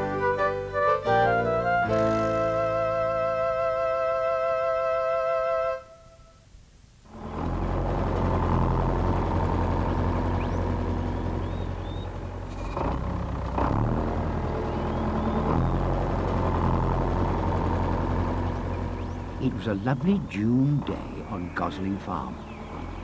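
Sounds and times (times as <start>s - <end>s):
tractor engine running: 0.0s - 3.9s, 7.1s - 23.0s
birds chirping: 9.7s - 23.0s.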